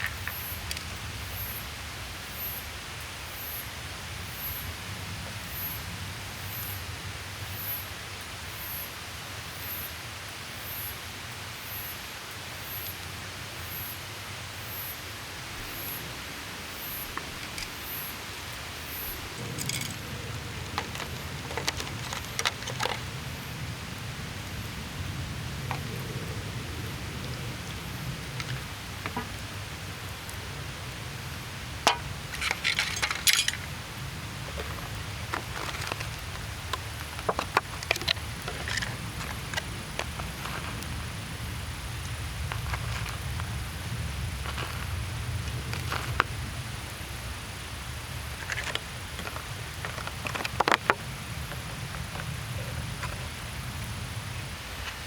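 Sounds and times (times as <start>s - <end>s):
insect chirping: 0.0s - 4.7s, 13.6s - 55.0s
rain pattering: 0.0s - 55.0s
rushing outdoor ambience: 0.0s - 55.0s
rustling clicks: 17.0s - 18.2s, 19.1s - 23.2s, 31.9s - 40.9s.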